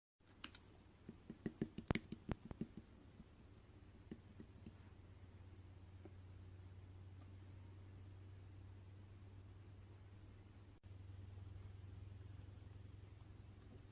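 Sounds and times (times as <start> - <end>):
faint low hum: 0.3 - 13.9
slime clicking and popping: 0.4 - 2.8.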